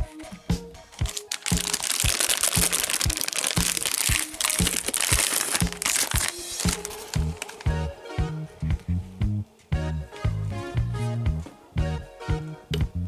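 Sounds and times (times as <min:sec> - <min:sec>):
background music with steady beat: 0:00.0 - 0:13.0
meat grinder crunching: 0:01.0 - 0:07.7.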